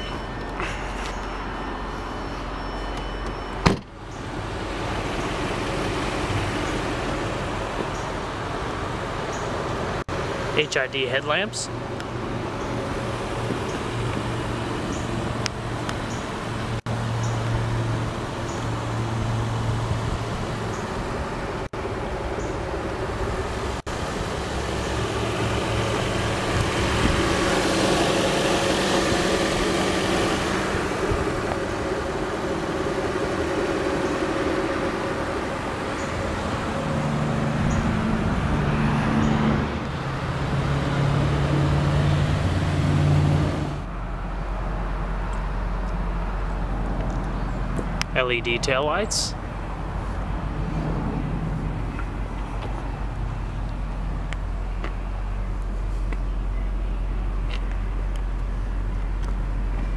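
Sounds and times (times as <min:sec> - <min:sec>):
car engine idling: 0:00.0 - 0:40.6.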